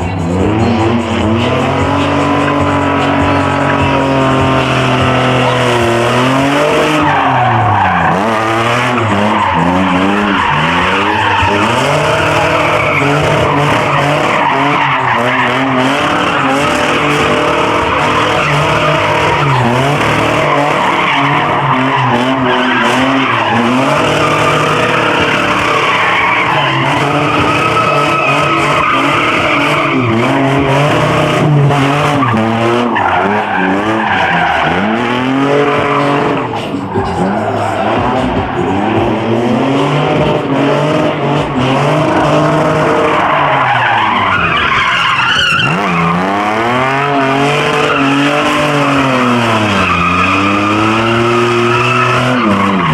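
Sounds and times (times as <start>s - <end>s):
car engine revving hard: 0.0s - 52.9s
tyres squealing and skidding: 0.0s - 52.9s.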